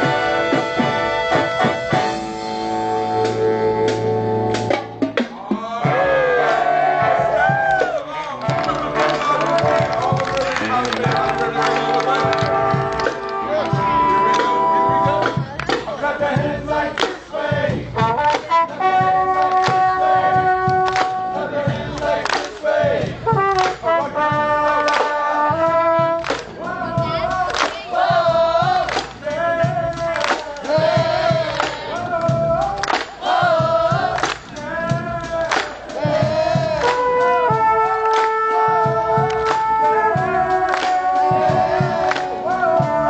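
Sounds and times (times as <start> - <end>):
brass chords: 0.0 - 5.1, 5.8 - 43.0.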